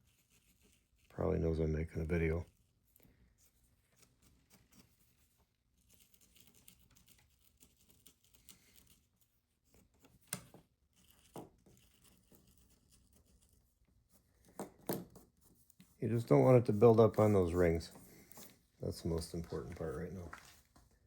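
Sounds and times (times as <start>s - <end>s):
light scratching and taps: 14.4s - 21.0s.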